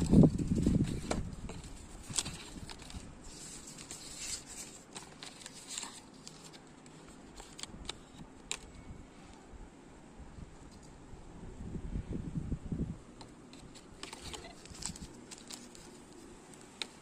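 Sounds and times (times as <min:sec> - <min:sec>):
plastic packaging rustling: 0:00.0 - 0:08.7, 0:13.5 - 0:17.0.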